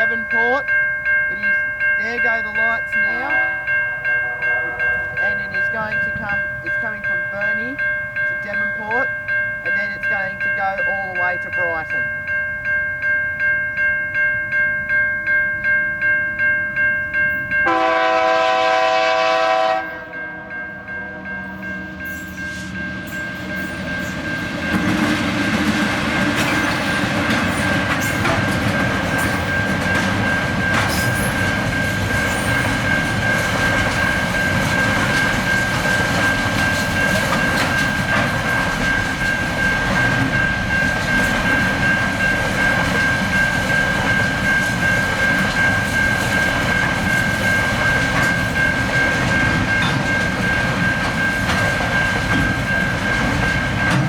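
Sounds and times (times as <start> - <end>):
wheels clacking on rails: 0.0 - 12.7, 21.5 - 54.0
high-pitched tone: 0.0 - 18.1, 18.8 - 25.1
freight train passing: 0.0 - 54.0.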